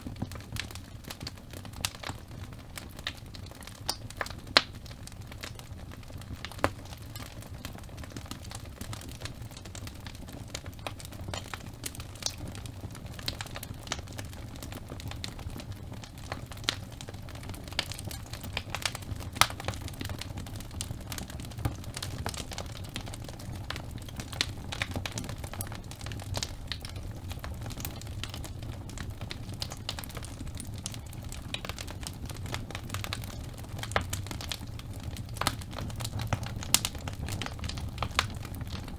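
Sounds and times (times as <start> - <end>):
logs crackling and popping: 0.0 - 38.9
low rumble of flames: 0.0 - 38.9.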